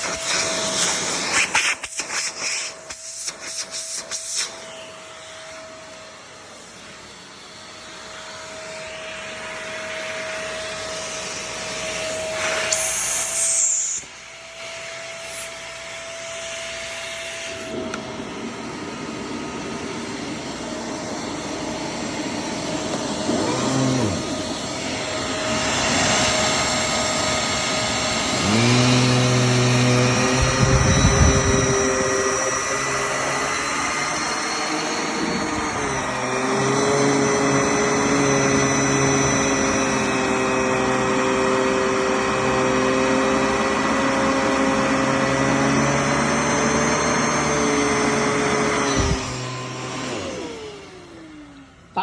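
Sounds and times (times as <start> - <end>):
vacuum cleaner running: 0.0 - 52.0
rising pitched tone: 17.4 - 52.0.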